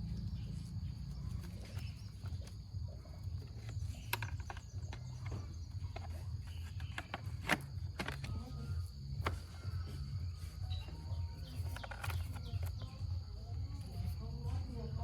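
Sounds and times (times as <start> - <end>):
steady low hum: 0.0 - 15.0
hand tools clicking and knocking: 1.2 - 8.3.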